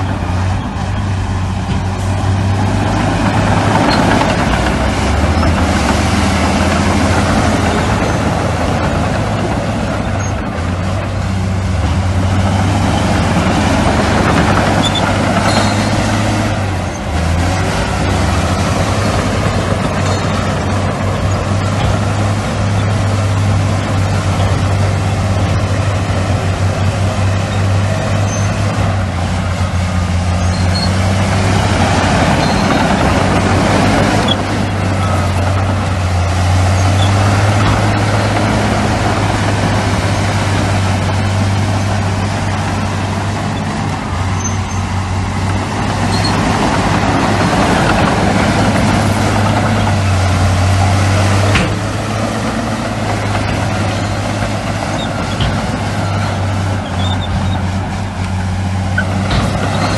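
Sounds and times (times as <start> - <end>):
heavy machinery diesel engines: 0.0 - 59.9.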